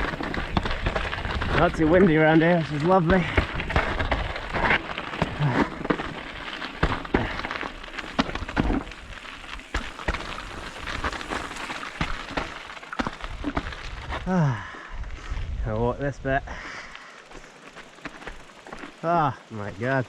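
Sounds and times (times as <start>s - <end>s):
bike frame rattling and knocking: 0.0s - 13.9s
tyres crunching on gravel: 0.0s - 20.0s.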